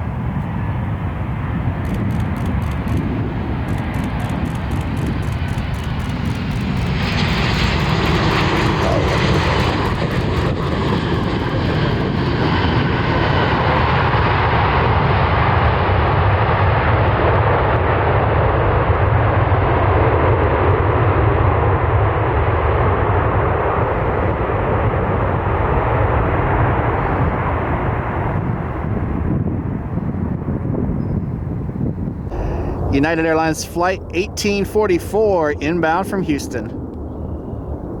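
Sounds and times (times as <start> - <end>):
jet airliner engines passing: 0.0 - 38.0.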